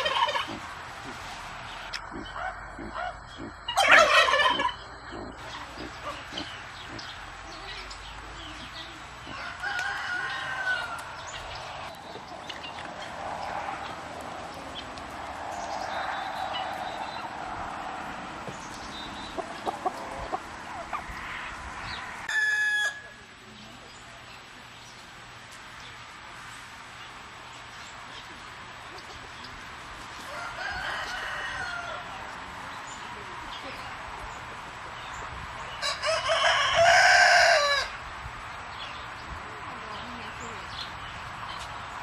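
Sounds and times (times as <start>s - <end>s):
turkey gobble: 0.0s - 1.2s, 1.8s - 6.6s
turkeys calling and clucking: 0.0s - 8.3s, 9.2s - 23.0s.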